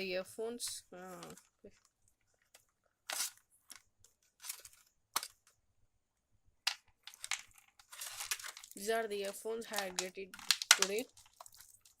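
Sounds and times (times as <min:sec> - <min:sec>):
packaging crinkling: 0:01.1 - 0:05.5, 0:07.0 - 0:12.0.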